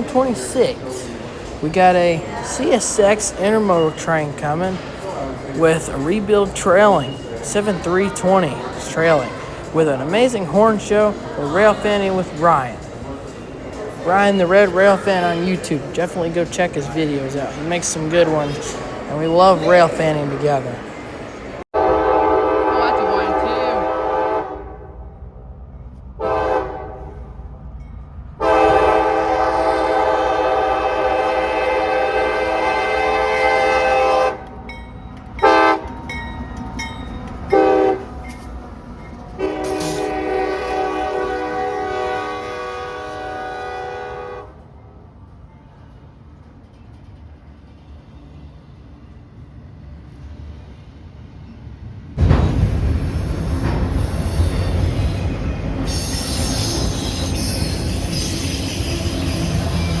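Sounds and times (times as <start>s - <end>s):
train rumble: 0.0s - 60.0s
locomotive air horn: 21.8s - 25.0s, 26.2s - 27.3s, 28.4s - 34.5s, 35.4s - 35.9s, 37.5s - 38.2s, 39.4s - 44.6s, 55.9s - 60.0s
faint wheel squeal: 54.0s - 60.0s.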